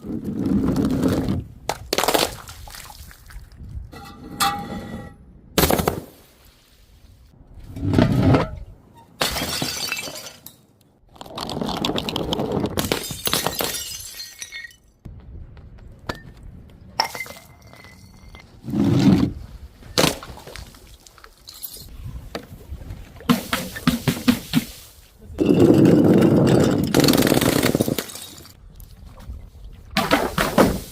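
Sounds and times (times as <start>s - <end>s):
glass bottles smashing: 9.2s - 10.6s, 12.8s - 14.9s, 25.4s - 28.6s.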